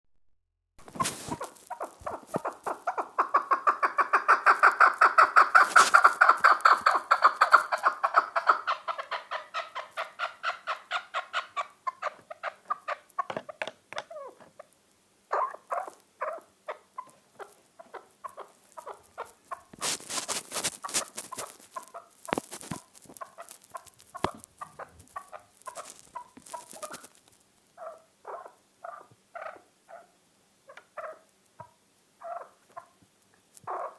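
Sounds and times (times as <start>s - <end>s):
partridge clucking calls: 0.8s - 14.7s, 15.3s - 27.1s.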